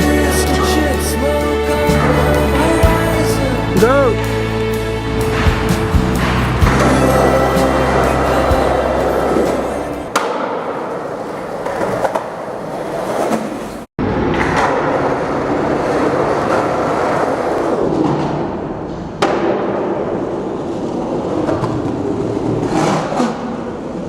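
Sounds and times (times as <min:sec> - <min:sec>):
skateboard wheels rolling on pavement: 0:05.0 - 0:19.3, 0:20.0 - 0:24.0.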